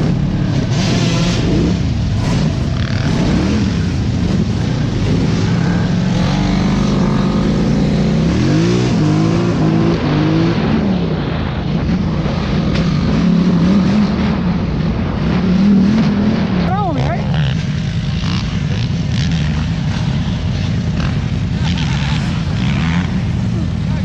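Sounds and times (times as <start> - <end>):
off-road vehicle engine revving: 0.0 - 24.0.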